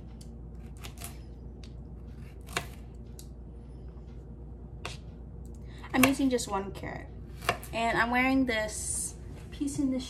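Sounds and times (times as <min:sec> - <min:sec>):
steady low hum: 0:00.0 - 0:10.0
knife cutting on cutting board: 0:02.0 - 0:02.9.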